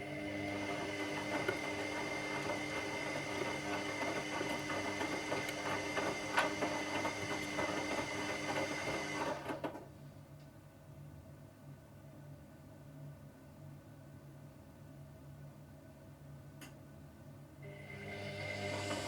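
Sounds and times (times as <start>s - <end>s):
washing machine motor whining: 0.0s - 9.7s, 17.6s - 19.0s.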